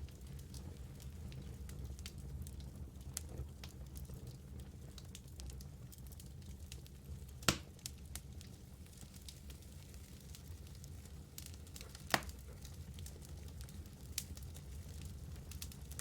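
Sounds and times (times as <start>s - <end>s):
wood fire burning: 0.0s - 16.0s
loud fire pop: 7.4s - 7.7s.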